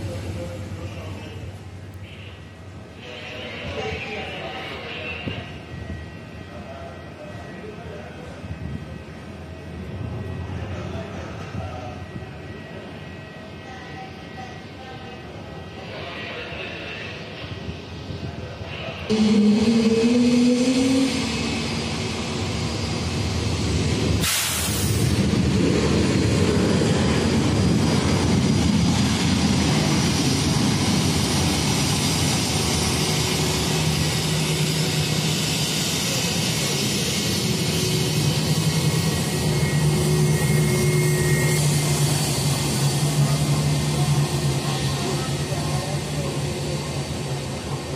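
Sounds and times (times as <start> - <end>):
rising whine: 19.1 - 24.2, 25.0 - 44.3
short hiss: 24.2 - 25.0.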